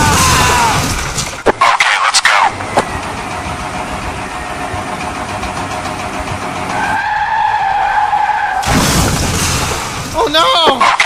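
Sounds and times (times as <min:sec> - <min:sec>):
high tyre squeal: 0:06.6 - 0:08.7
loud burst of noise: 0:08.6 - 0:10.2.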